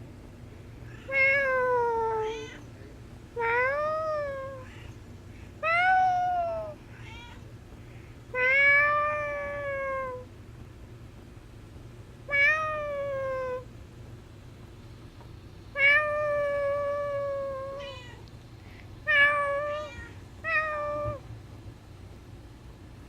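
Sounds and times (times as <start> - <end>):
cat meowing: 0.9 - 2.7, 3.4 - 4.9, 5.6 - 7.5, 8.4 - 10.2, 12.3 - 13.6, 15.8 - 18.2, 19.1 - 21.2.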